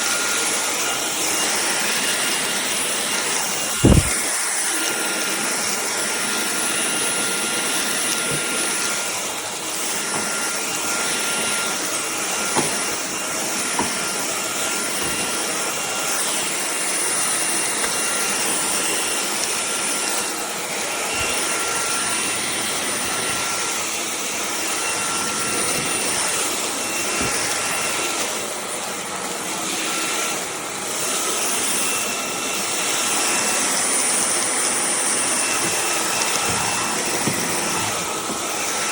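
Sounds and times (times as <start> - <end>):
stick vacuum running: 0.0 - 38.9.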